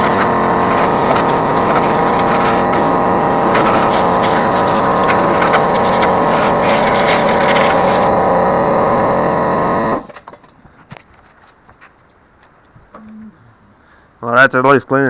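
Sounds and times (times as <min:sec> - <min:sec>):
small power tool running: 0:00.0 - 0:10.3.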